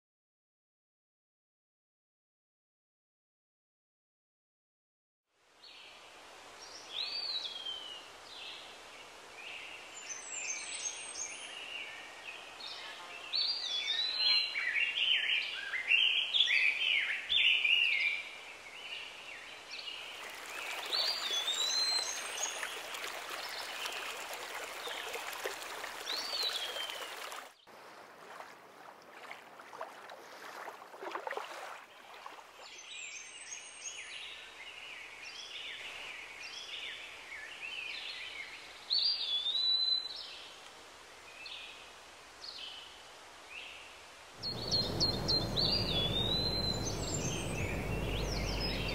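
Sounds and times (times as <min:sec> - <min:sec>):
steady outdoor hiss: 0:05.3 - 0:30.9, 0:32.1 - 0:48.9
birds singing and chirping: 0:44.4 - 0:48.9
loud rushing hiss: 0:44.4 - 0:48.9.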